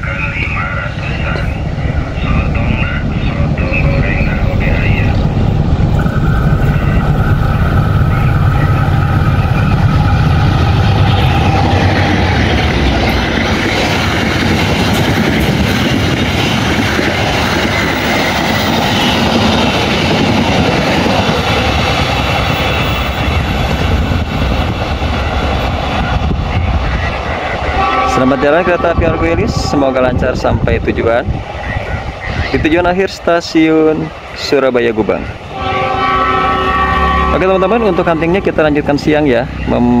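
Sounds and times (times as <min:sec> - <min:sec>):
steady high tone: 0:00.0 - 0:14.4, 0:35.5 - 0:40.0
diesel locomotive engine droning: 0:00.0 - 0:40.0
train wheels clattering on rails: 0:06.6 - 0:28.2.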